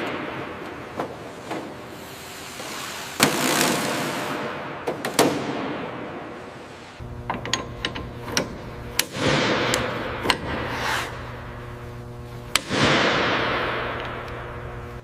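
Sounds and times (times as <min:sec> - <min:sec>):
low steady hum: 0:05.4 - 0:15.0.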